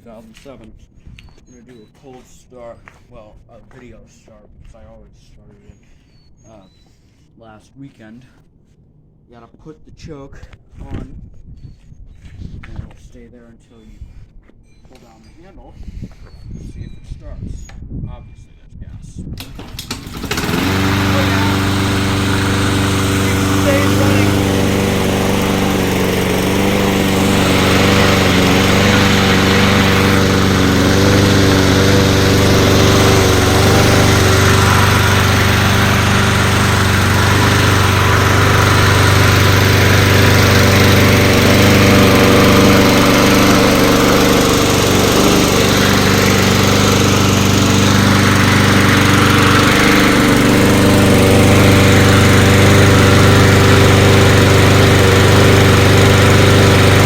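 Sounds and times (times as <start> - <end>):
lawn mower engine running: 19.4 - 57.0.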